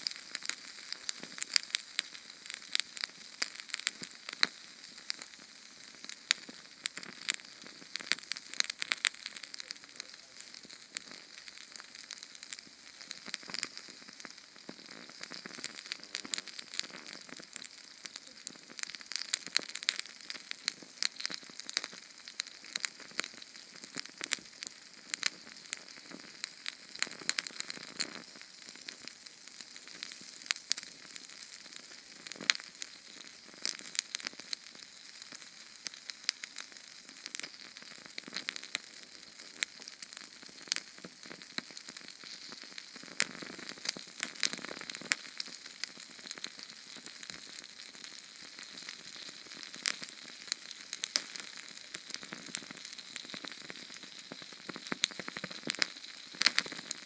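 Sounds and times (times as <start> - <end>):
flame crackling: 0.0 - 57.0
steady hiss: 4.7 - 19.2.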